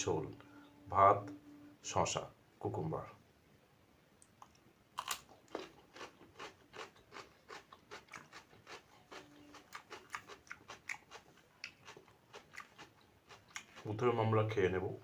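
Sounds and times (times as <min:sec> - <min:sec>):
person chewing crunchy food: 0:04.4 - 0:13.9.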